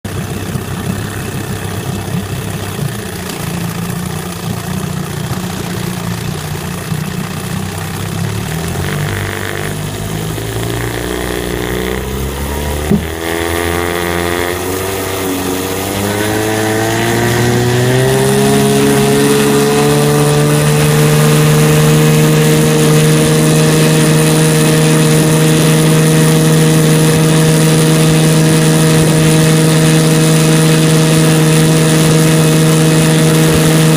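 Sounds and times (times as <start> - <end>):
outboard motor running: 0.0 - 33.9.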